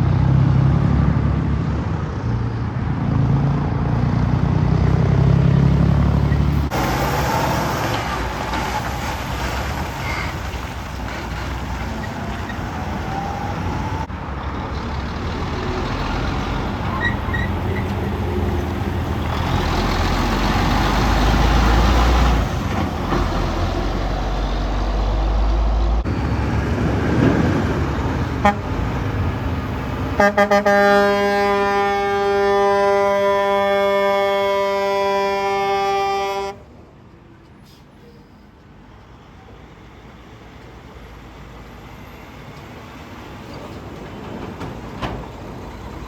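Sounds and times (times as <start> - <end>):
heavy trucks driving past: 0.0 - 46.0
truck horn blasts: 28.4 - 28.9, 30.1 - 36.6.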